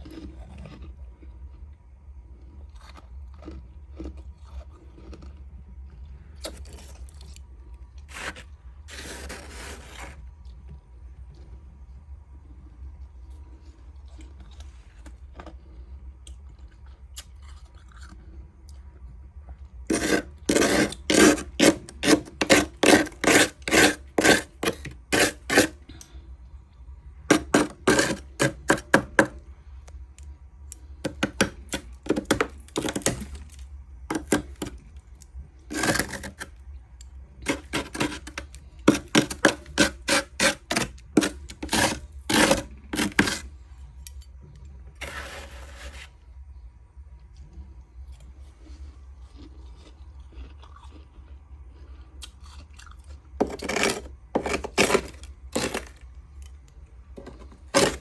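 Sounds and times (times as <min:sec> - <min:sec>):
frost crunching: 0:19.9 - 0:25.9, 0:27.3 - 0:29.4, 0:52.8 - 0:56.0.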